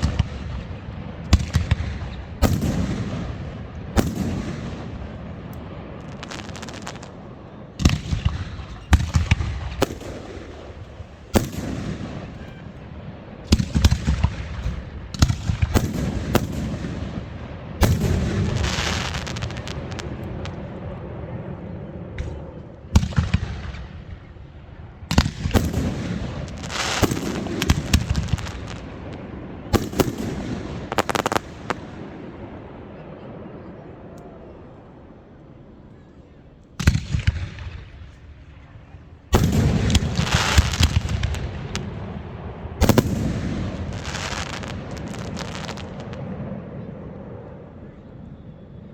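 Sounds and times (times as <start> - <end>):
fireworks crackling: 0.0 - 20.9, 25.1 - 32.6, 39.3 - 46.3
fireworks bangs: 0.0 - 33.9, 36.8 - 47.0.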